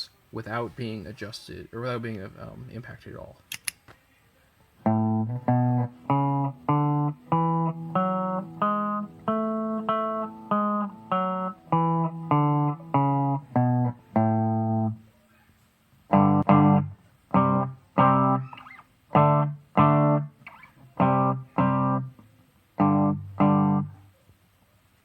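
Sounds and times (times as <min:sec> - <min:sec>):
guitar picking single notes: 0:04.8 - 0:15.0, 0:16.1 - 0:24.0.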